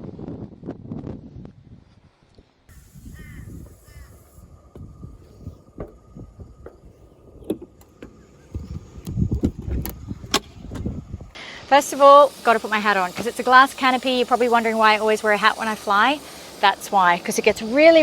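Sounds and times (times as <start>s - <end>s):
bird calling: 2.7s - 4.4s.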